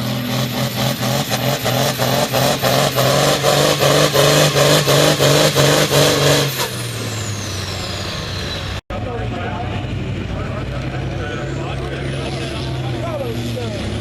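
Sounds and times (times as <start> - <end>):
diesel engine clatter: 0.0 - 14.0
tractor turbo whine: 0.0 - 14.0.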